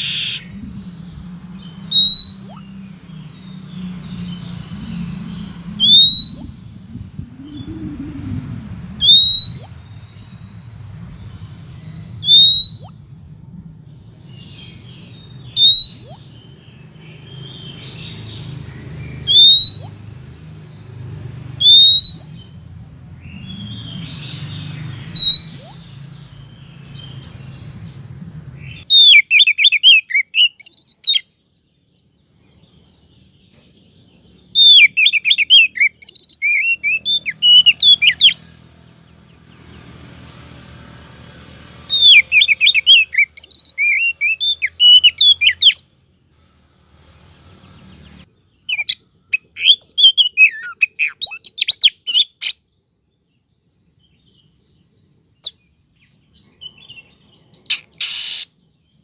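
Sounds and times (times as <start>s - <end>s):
bird chirps and whistles: 0.0s - 0.8s, 1.6s - 2.8s, 4.2s - 10.0s, 12.2s - 13.1s, 15.5s - 16.3s, 19.2s - 20.0s, 21.6s - 22.5s, 25.1s - 26.0s, 28.6s - 31.2s, 34.2s - 38.5s, 41.9s - 45.9s, 48.6s - 52.6s, 57.7s - 58.6s.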